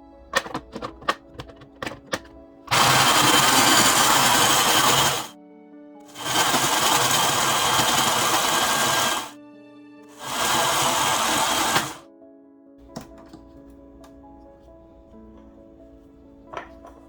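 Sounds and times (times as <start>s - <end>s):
snow cone machine shaving ice: 2.7s - 5.3s, 6.1s - 9.4s, 10.1s - 12.0s.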